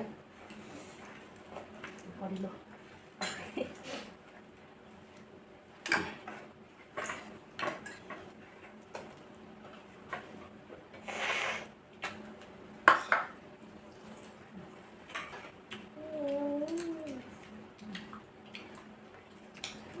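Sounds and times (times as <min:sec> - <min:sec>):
cutlery clinking against dishes: 0:07.0 - 0:08.2, 0:12.9 - 0:13.4.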